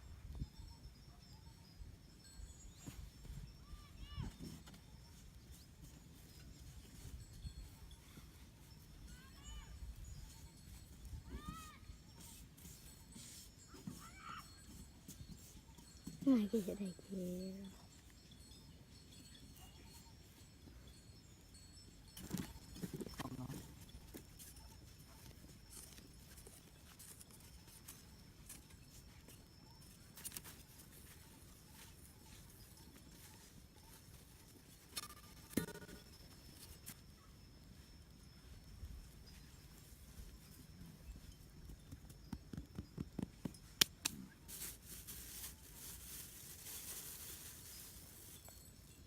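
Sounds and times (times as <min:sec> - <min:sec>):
rustling: 0:44.4 - 0:48.7.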